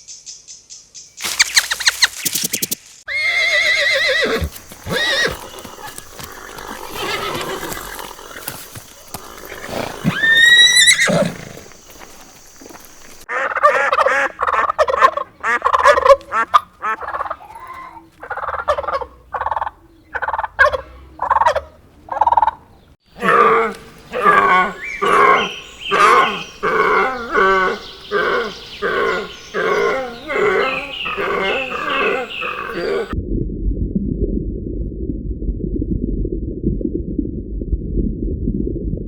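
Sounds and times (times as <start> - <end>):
turkeys gobbling: 12.6 - 22.7, 24.2 - 33.2.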